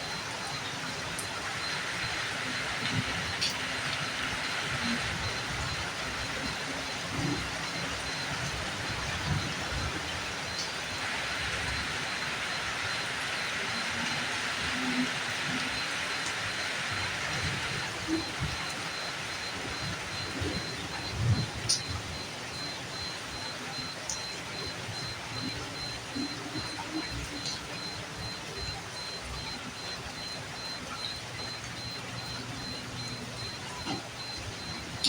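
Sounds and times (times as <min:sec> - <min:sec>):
steady rainfall: 0:00.0 - 0:35.0.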